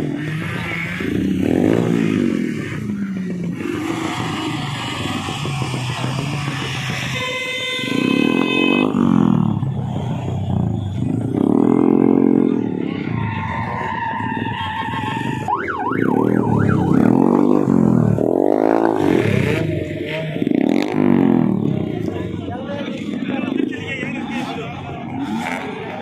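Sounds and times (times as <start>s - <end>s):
vehicle engines revving: 0.0s - 26.0s
warbling siren horn: 13.2s - 19.6s.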